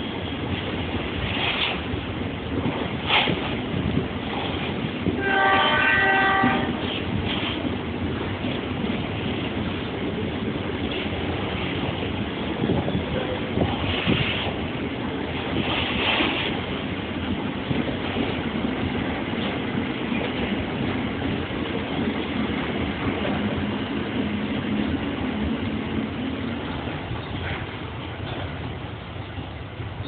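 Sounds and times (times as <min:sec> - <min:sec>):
train wagons rumbling and rattling: 0:00.0 - 0:30.0.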